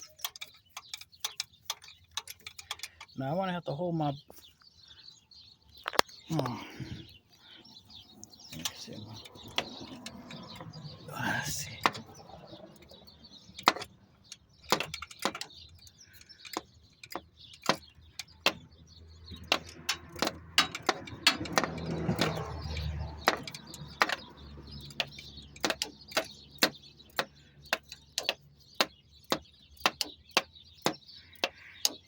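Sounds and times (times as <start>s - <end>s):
hand ratchet clicking: 0.0s - 3.1s, 14.6s - 18.6s, 19.3s - 32.0s.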